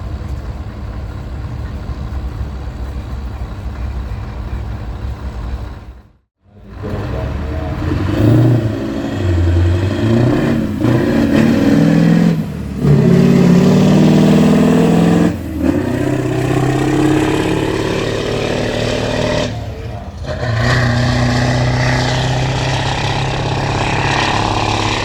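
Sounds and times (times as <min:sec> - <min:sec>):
diesel truck engine pulling hard: 0:00.0 - 0:25.0.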